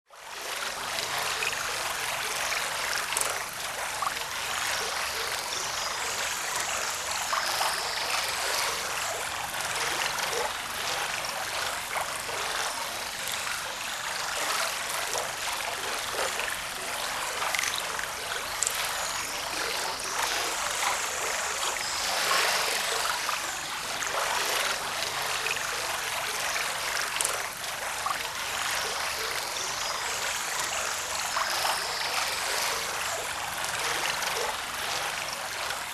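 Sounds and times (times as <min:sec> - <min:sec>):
small splashes and trickles: 0:00.1 - 0:35.9.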